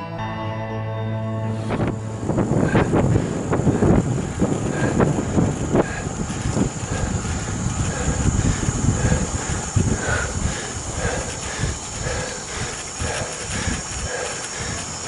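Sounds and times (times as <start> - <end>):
low rumble: 1.3 - 14.0
wind buffeting microphone: 1.6 - 15.0.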